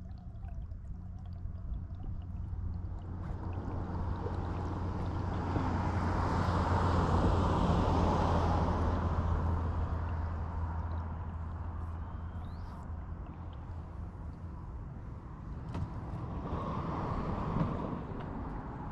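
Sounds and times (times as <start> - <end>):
steady low rumble: 0.0 - 16.4
vehicle passing by: 3.0 - 13.4.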